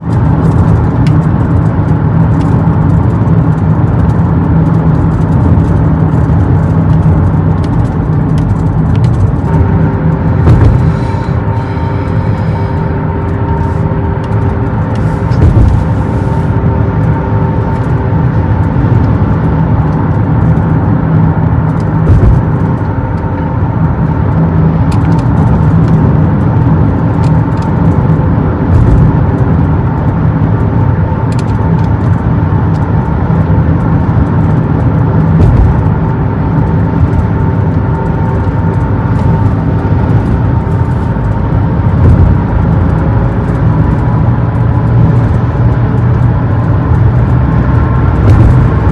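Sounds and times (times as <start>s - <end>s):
tyre and engine rumble: 0.0s - 48.9s.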